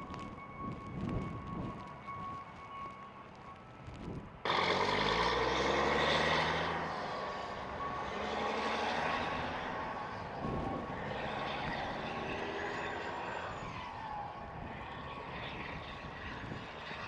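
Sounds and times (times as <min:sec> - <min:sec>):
road and snow rushing noise: 0:00.0 - 0:17.0
heavy truck engine: 0:04.3 - 0:17.0.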